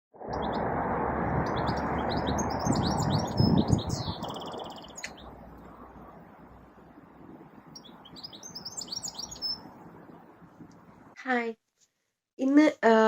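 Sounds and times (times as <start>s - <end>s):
steady rushing noise: 0.2s - 11.2s
songbirds chirping: 1.4s - 11.2s.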